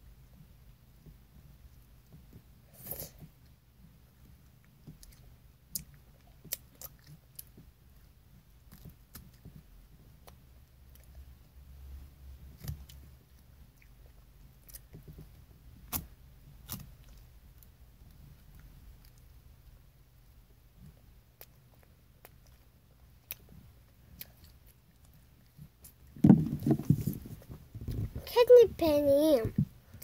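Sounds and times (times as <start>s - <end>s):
child chewing paper: 4.6s - 8.0s, 12.5s - 19.4s, 20.8s - 28.0s.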